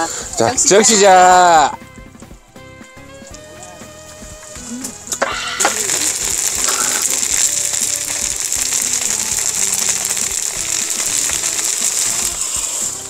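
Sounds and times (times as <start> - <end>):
food sizzling on griddle: 3.8 - 13.0.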